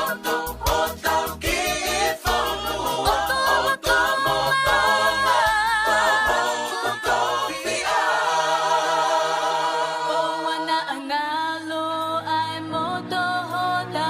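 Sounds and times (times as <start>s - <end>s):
voices singing in harmony: 0.0s - 14.0s.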